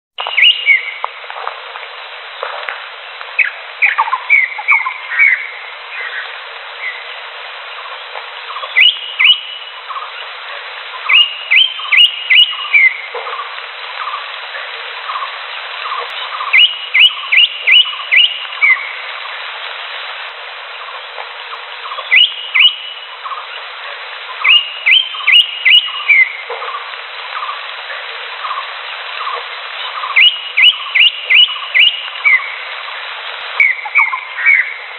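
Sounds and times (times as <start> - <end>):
bird singing whistled notes: 0.2 - 1.0, 3.4 - 7.0, 8.5 - 10.1, 11.0 - 13.1, 15.9 - 19.0, 21.8 - 23.4, 24.4 - 26.4, 29.2 - 32.6, 33.6 - 34.8.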